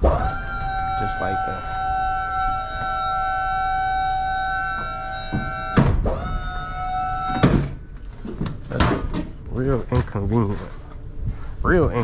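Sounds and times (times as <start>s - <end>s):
hydraulic pump motor whining: 0.0s - 8.4s.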